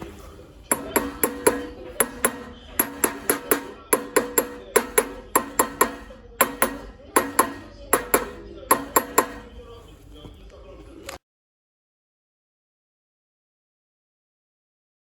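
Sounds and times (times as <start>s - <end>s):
hammer striking metal: 0.7s - 9.7s.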